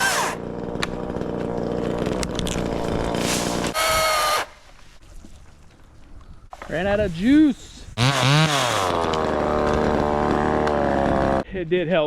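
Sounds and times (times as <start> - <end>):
battery chainsaw running: 0.0 - 4.4, 8.0 - 11.4.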